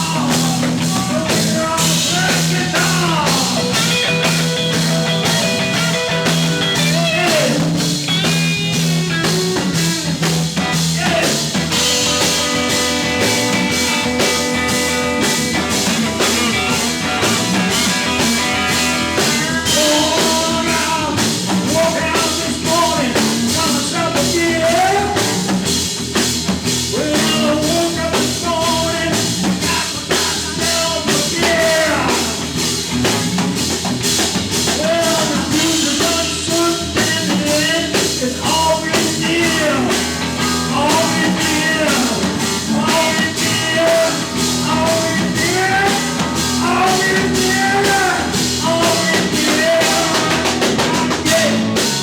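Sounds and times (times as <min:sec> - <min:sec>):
blues-rock band playing: 0:00.0 - 0:52.0
drum kit steady beat: 0:00.0 - 0:52.0
bending lead line: 0:00.2 - 0:20.6.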